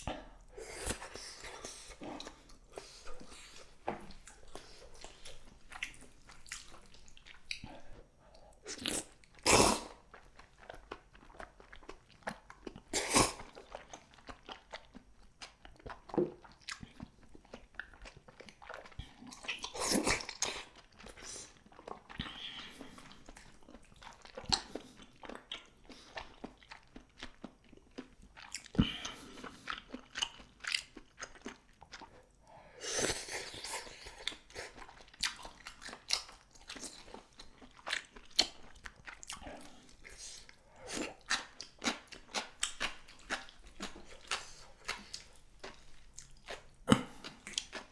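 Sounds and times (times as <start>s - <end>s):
wet mouth clicks and smacks: 0.0s - 7.9s, 8.9s - 32.2s, 33.0s - 47.9s
person biting and chewing: 8.7s - 10.0s, 13.0s - 13.9s, 18.7s - 20.8s.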